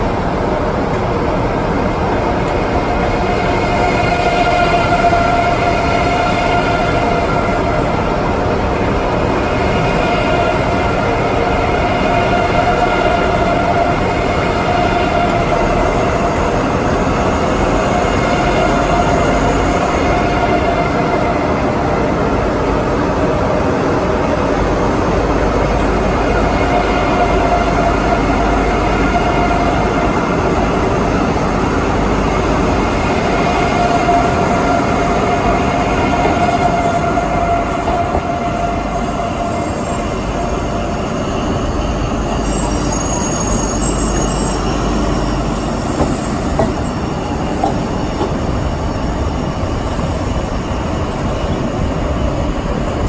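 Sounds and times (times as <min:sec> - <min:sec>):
steady train whine: 0:00.0 - 0:53.0
train wheels rolling on rail: 0:00.0 - 0:53.0
wheel squeals: 0:41.3 - 0:47.1.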